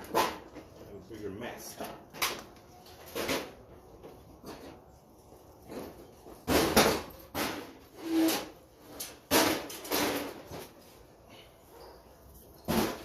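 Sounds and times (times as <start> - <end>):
metal parts scraping and clunking: 4.4 - 11.0.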